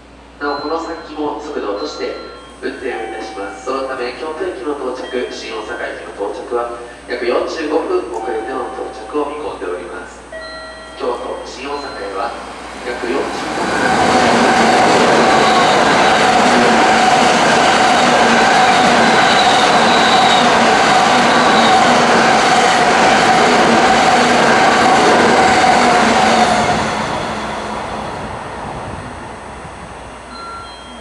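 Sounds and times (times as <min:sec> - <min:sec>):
train whine: 0:00.0 - 0:31.0
train rushing past: 0:11.0 - 0:31.0.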